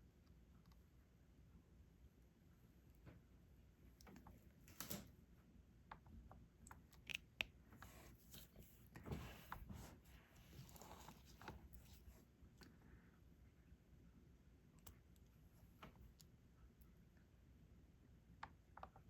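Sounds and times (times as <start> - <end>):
soft rustling of handling: 6.8 - 12.8.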